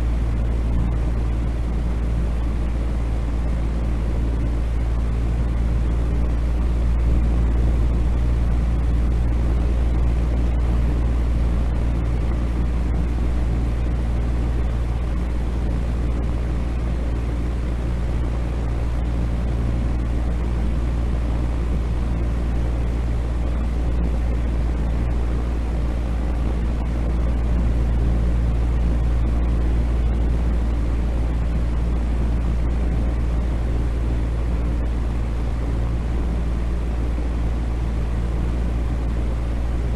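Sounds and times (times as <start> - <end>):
deep rumbling steady noise: 0.0 - 39.9.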